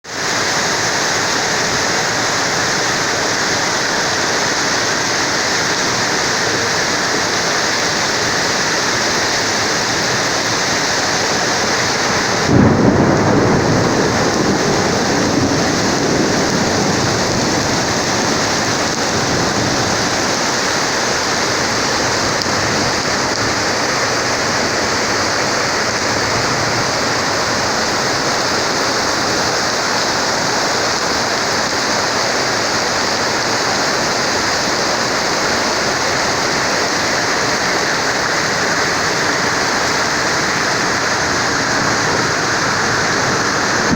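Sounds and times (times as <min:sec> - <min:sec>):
heavy rain pouring: 0:00.0 - 0:43.9
thunder clap rumbling: 0:10.9 - 0:29.1, 0:38.4 - 0:43.9.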